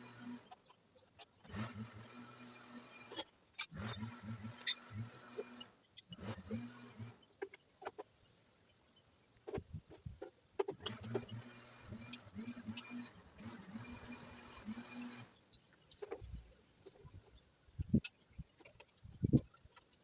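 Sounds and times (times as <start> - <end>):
metallic clicks of tools: 3.1 - 4.8, 10.6 - 13.1.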